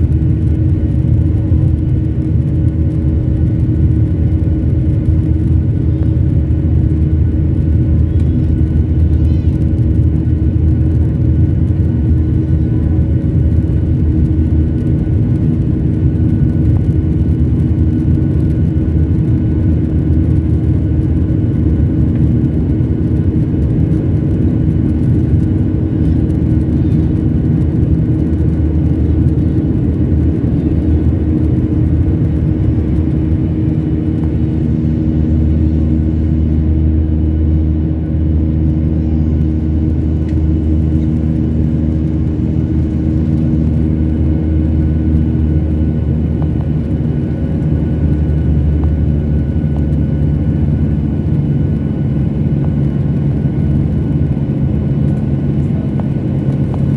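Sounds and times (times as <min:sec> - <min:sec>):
jet cabin engine drone: 0:00.0 - 0:56.9
steady hums: 0:00.0 - 0:56.9.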